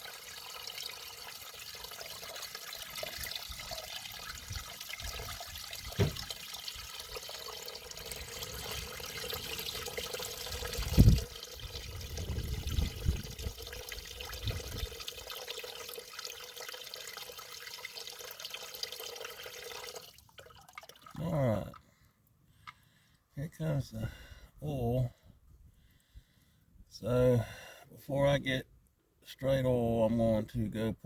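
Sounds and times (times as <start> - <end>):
water pouring into container: 0.0 - 21.8.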